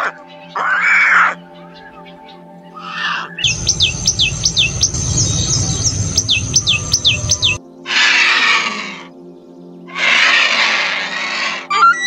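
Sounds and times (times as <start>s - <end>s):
high whistled bird calls: 3.2s - 7.6s
low rumble: 3.4s - 7.6s.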